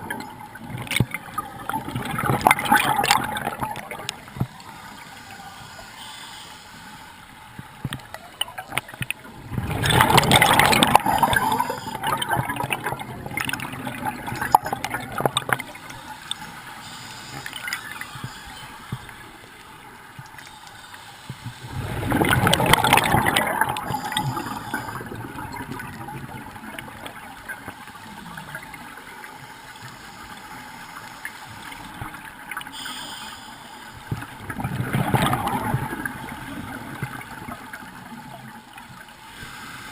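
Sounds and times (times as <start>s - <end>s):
exhaled bubbles underwater: 0.0s - 4.8s, 7.8s - 16.4s, 21.6s - 29.4s, 34.0s - 39.1s
quiet gurgling: 0.0s - 39.9s.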